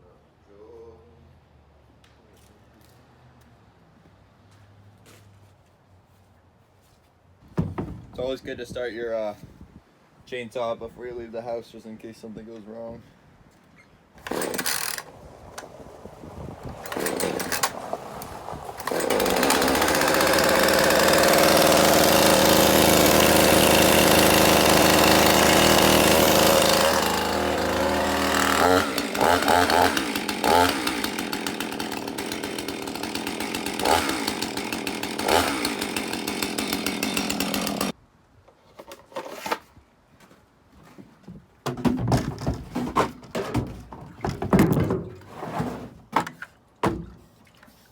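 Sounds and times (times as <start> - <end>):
chainsaw running: 14.2 - 15.2, 16.7 - 38.0.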